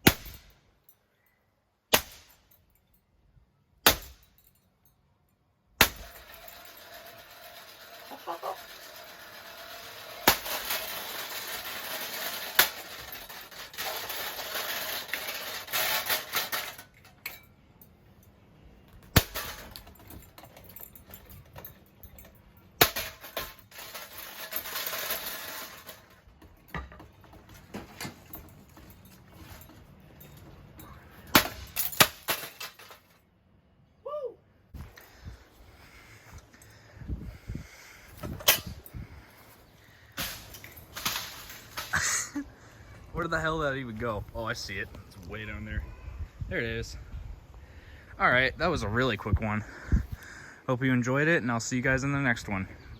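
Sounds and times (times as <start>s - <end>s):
loud sharp cracks and bangs: 10.2s - 10.7s.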